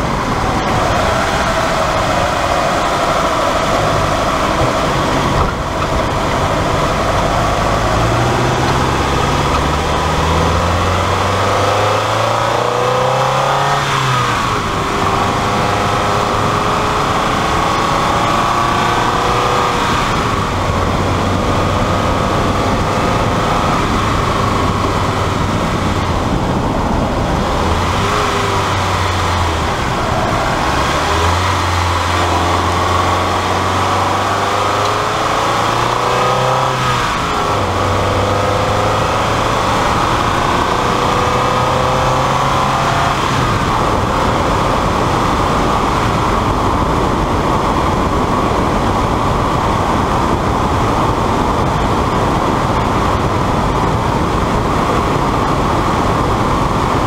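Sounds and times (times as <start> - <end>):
car engine revving: 0.0 - 57.0
road and wind noise: 0.0 - 57.0.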